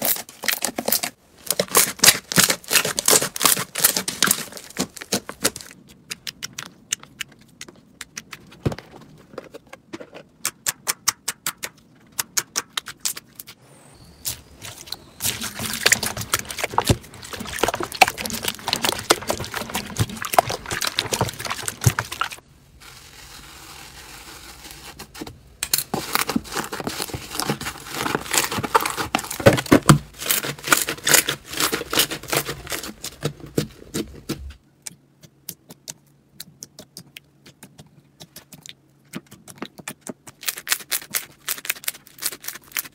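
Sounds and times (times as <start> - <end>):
slime clicking and crackling: 0.0 - 8.5, 14.3 - 22.4, 25.6 - 33.3, 34.8 - 42.9.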